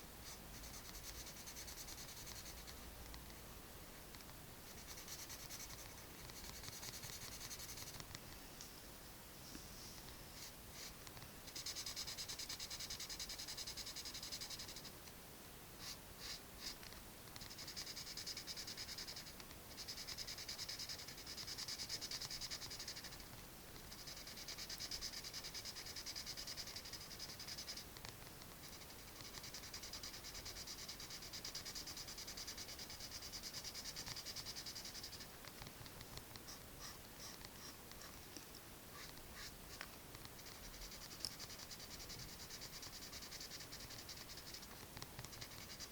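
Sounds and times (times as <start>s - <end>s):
pencil scratching on paper: 0.2s - 3.4s, 4.7s - 8.2s, 10.4s - 15.0s, 15.8s - 38.2s, 38.9s - 45.9s.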